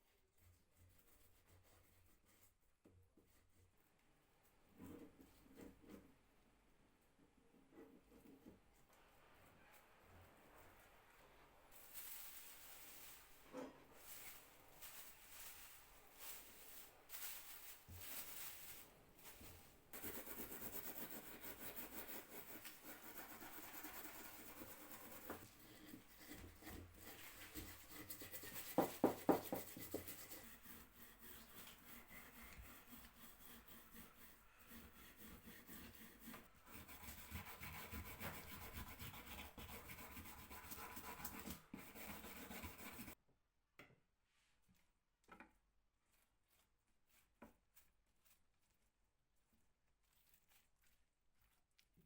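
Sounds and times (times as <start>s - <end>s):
scrape on wood: 11.8s - 43.2s.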